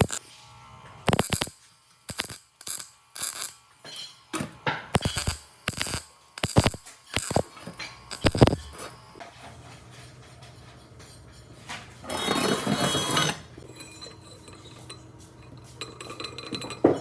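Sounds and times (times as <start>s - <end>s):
metallic clinks and knocks: 13.6s - 17.0s.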